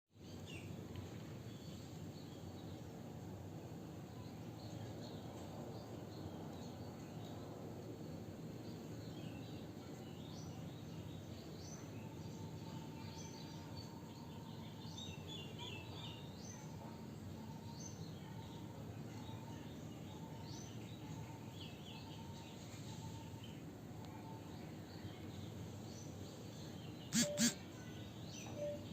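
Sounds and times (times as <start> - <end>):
small birds chirping: 8.6 - 28.9
faint repeated note: 27.2 - 27.6.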